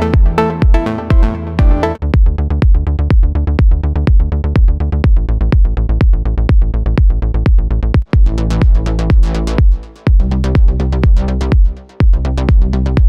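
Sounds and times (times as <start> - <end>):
plucked synth melody: 0.0 - 2.0
kick drum: 0.0 - 13.0
synth bass: 0.0 - 13.0.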